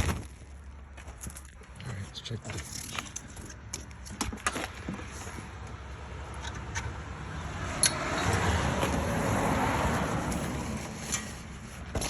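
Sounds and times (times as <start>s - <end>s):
passing road vehicle: 4.7s - 12.0s.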